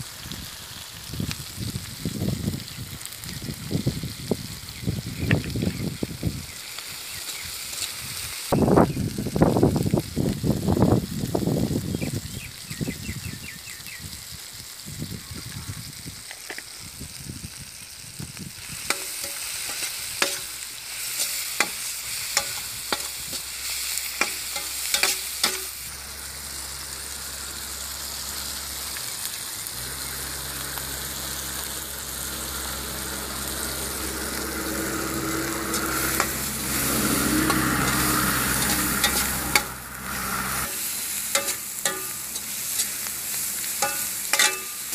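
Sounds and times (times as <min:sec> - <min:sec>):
vegetables sizzling in oil: 0:00.0 - 0:44.9
metal ladle scraping pan: 0:18.8 - 0:25.9, 0:33.4 - 0:44.9.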